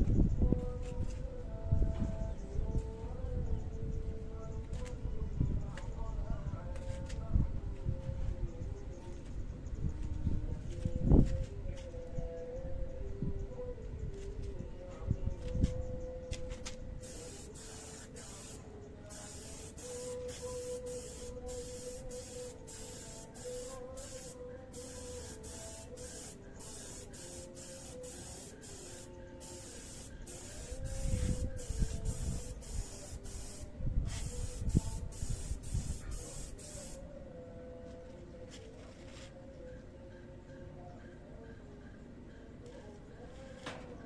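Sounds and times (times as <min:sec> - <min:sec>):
spray gun hissing: 0:17.0 - 0:37.0.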